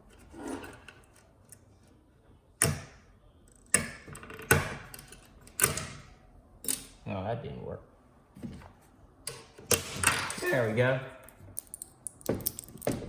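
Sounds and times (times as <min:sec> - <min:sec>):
tools clicking and clacking: 0:11.2 - 0:13.0.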